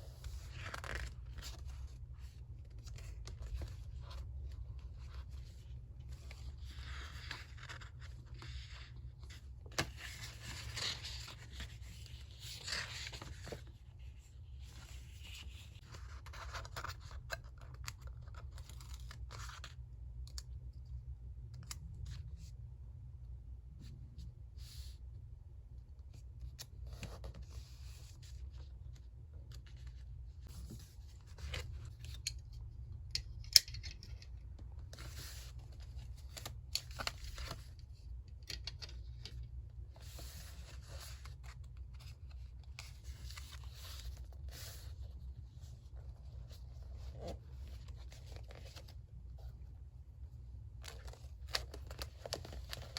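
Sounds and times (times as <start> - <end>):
paper rustling and scraping: 0.0 - 19.6, 39.9 - 49.4, 50.8 - 52.9.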